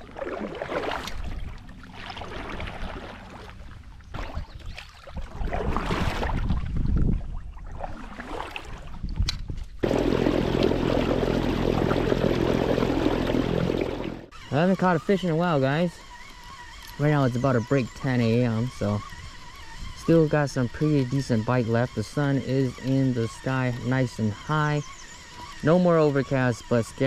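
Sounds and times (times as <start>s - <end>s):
water and wind whooshing: 0.0s - 14.3s.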